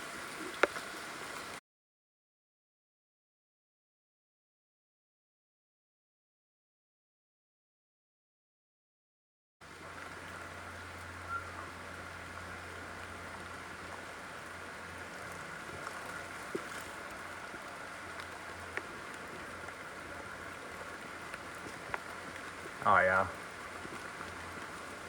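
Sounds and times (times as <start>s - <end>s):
rain on foliage: 0.0s - 1.6s, 9.6s - 25.0s.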